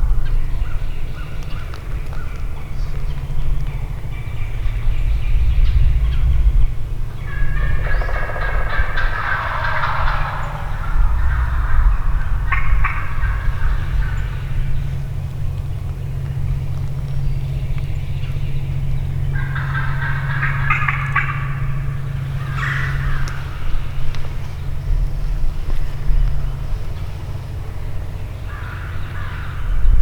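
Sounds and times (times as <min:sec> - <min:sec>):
steady low rumble: 0:00.0 - 0:30.0
turkey gobbling: 0:04.0 - 0:16.4, 0:19.0 - 0:27.2.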